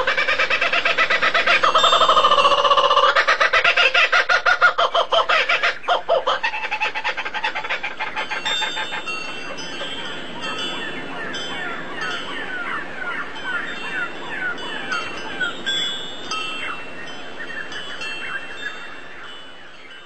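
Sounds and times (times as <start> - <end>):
bird calling fast repeated notes: 0.0 - 9.2
faint high bird calls: 0.0 - 15.7.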